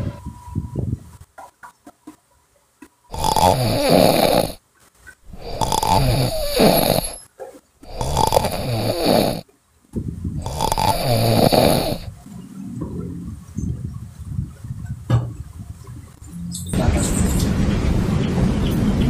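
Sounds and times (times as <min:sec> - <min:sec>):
air bubbling in bottle: 0:05.3 - 0:07.2.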